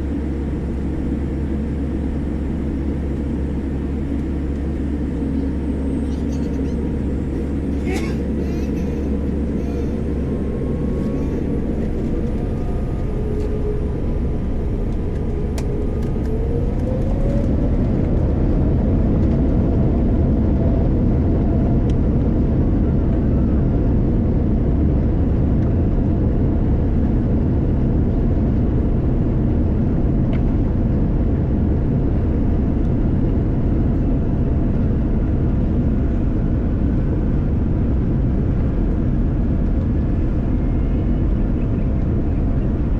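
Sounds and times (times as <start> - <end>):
faint rising whine: 0.0 - 19.0
aircraft cabin engine rumble: 0.0 - 42.9.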